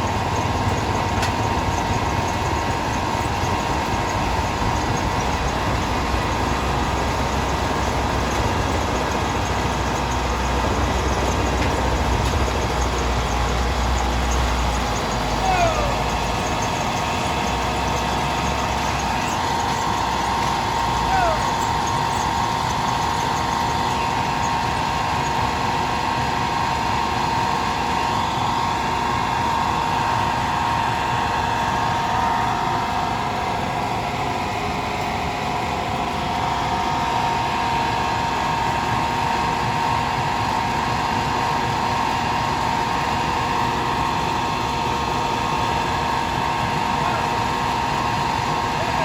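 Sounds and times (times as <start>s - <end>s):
heavy machinery with high whine: 0.0s - 49.0s.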